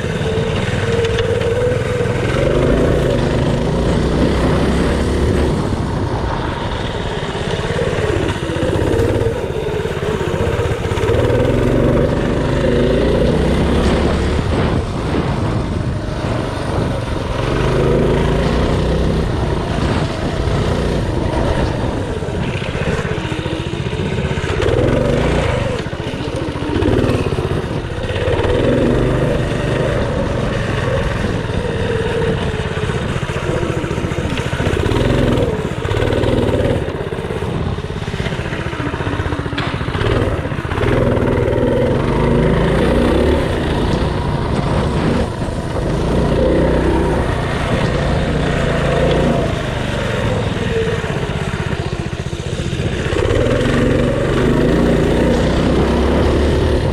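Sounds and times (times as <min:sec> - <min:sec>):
small bike engine revving: 0:00.0 - 0:56.9.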